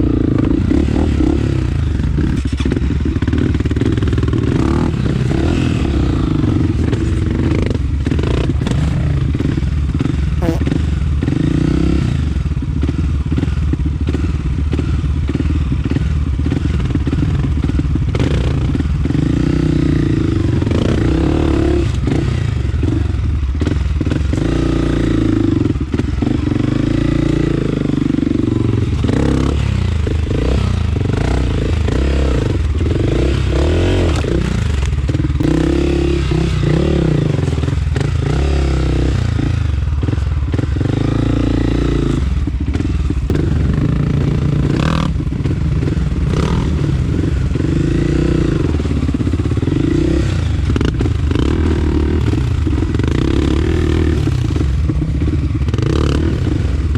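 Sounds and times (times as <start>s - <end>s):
dirt bike engine revving: 0.0s - 56.9s
knocks and clatter from bike: 2.2s - 4.6s.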